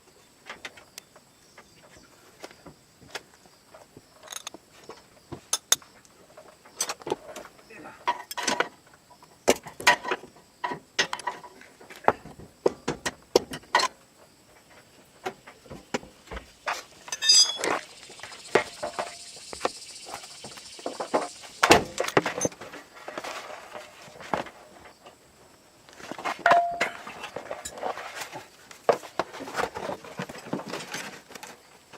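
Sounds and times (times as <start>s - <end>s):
clinks and knocks of handling: 4.2s - 4.6s, 16.7s - 17.8s, 26.4s - 27.8s
metallic jingle: 17.1s - 17.6s.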